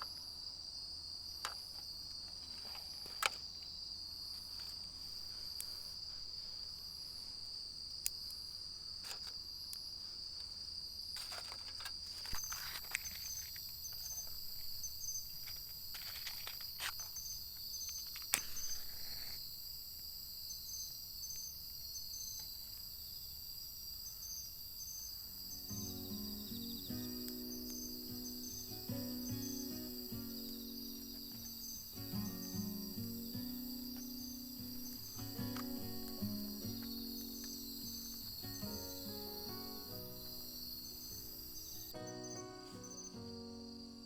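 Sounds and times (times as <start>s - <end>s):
high-pitched insect chorus: 0.0s - 44.0s
small clicks and knocks: 1.4s - 3.7s, 9.0s - 9.8s, 11.2s - 19.4s
insect short repeated chirps: 12.3s - 19.7s, 20.4s - 22.7s, 24.0s - 43.4s.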